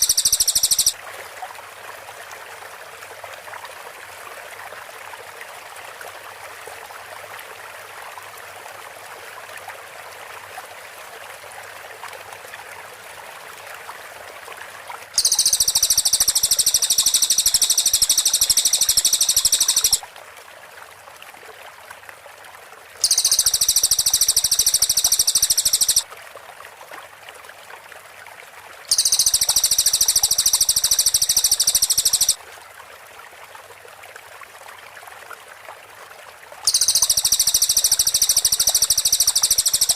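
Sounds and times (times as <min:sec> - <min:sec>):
bird singing rapid high notes: 0:00.0 - 0:01.0, 0:15.2 - 0:20.0, 0:23.0 - 0:26.0, 0:28.9 - 0:32.4, 0:36.7 - 0:39.9
steady watery background noise: 0:00.0 - 0:39.9.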